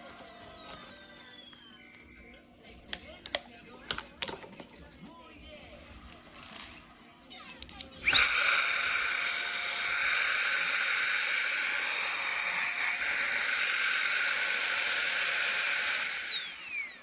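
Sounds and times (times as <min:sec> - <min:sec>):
electric air pump whining: 0:00.0 - 0:02.4, 0:07.9 - 0:17.0.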